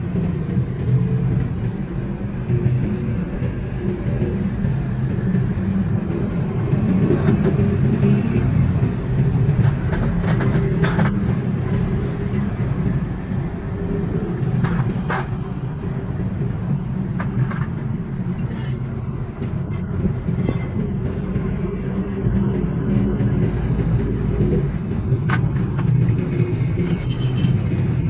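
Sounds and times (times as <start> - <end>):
low mechanical rumble: 0.0 - 28.0.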